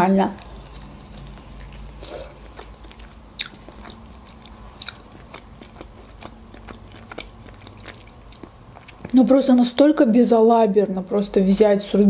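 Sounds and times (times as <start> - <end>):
wet chewing clicks and smacks: 0.8 - 9.2.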